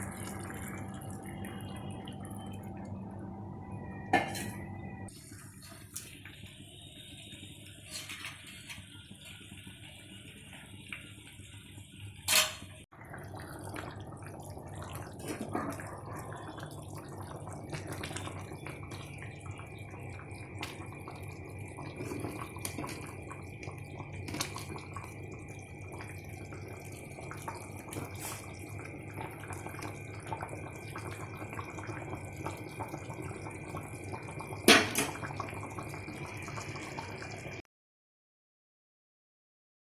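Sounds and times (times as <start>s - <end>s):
water sloshing and dripping: 5.2s - 35.4s.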